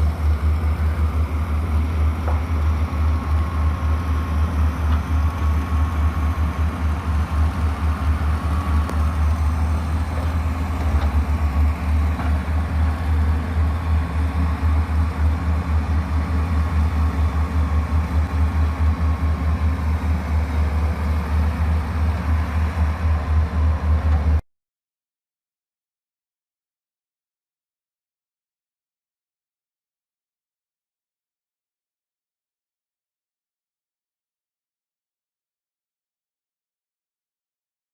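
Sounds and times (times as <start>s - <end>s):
heavy machine engine rumbling: 0.0s - 24.4s.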